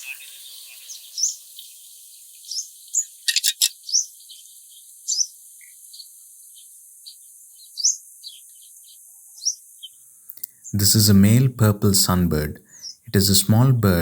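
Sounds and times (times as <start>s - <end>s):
sunbird chirping: 0.0s - 14.0s.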